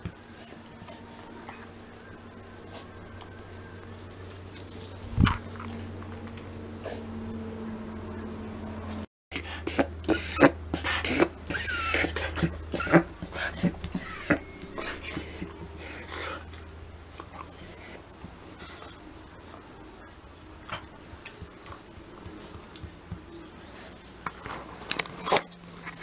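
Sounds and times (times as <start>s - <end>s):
dog reverse sneezing: 9.3s - 16.4s.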